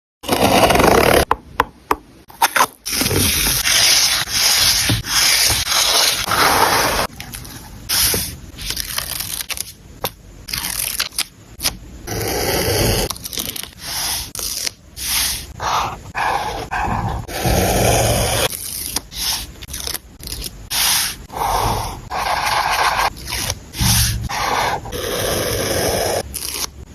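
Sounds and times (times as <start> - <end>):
paper scraping and rubbing: 2.9 - 9.7, 12.1 - 26.7.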